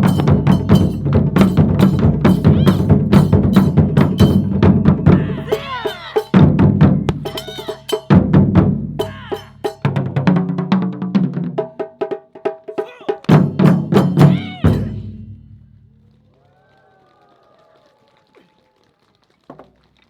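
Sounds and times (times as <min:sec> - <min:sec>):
taiko drumming: 0:00.0 - 0:15.6.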